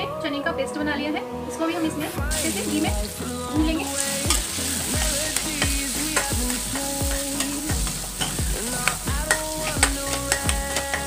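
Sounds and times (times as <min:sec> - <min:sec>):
paste sizzling in a pan: 0:02.3 - 0:11.0
spatula scraping a pan: 0:04.2 - 0:11.0.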